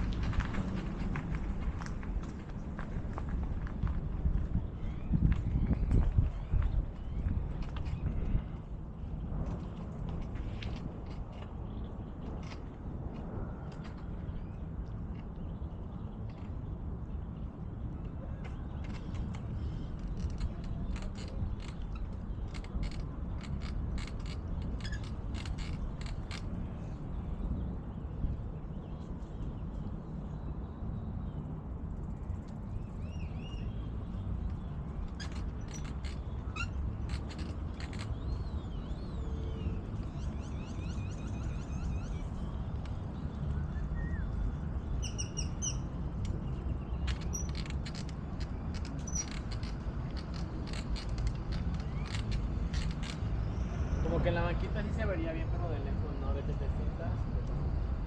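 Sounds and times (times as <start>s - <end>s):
bicycle clicks and creaks: 0.0s - 27.6s, 31.3s - 54.0s
wind and tyre rumble: 0.0s - 58.0s
birds whistling and chirping: 38.0s - 47.6s.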